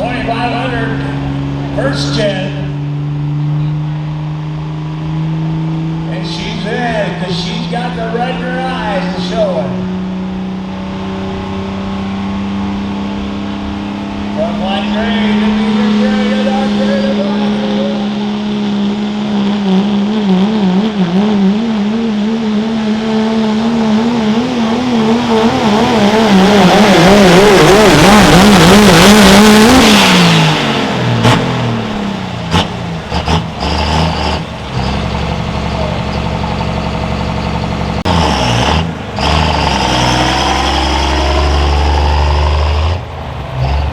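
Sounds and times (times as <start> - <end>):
diesel engine at full throttle: 0.0 - 43.9
engine idling: 24.7 - 38.2.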